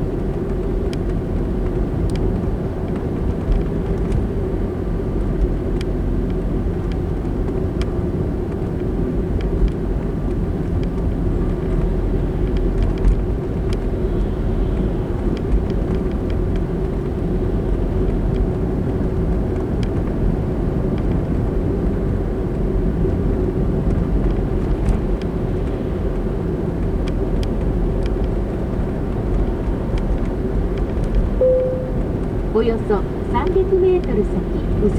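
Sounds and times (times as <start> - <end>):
car road and engine noise: 0.0 - 34.9
low steady hum: 31.4 - 34.9.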